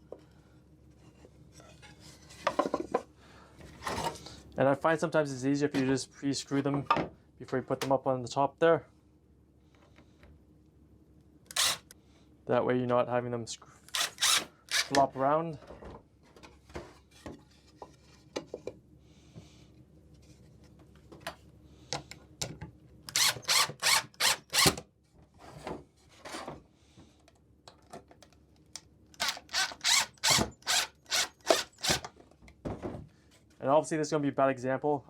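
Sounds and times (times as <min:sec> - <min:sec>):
screws driven into wood: 0:11.5 - 0:12.0, 0:13.9 - 0:15.0, 0:23.1 - 0:24.8, 0:29.2 - 0:32.1.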